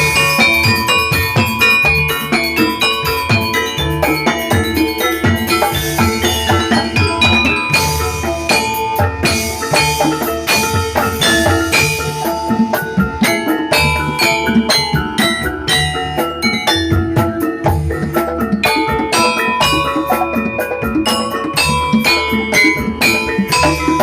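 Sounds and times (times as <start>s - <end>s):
drum beats: 0.0s - 24.0s
metallophones struck in pattern: 0.0s - 24.0s.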